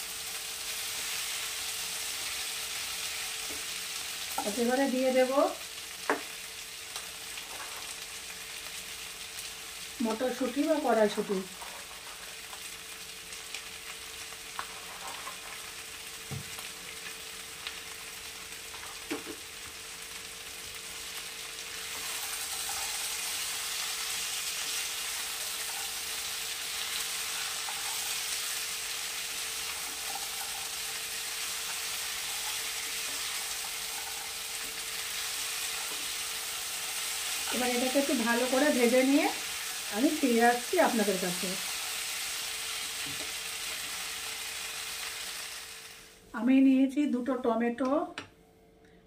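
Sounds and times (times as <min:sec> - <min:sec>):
vegetables sizzling in oil: 0:00.0 - 0:47.4.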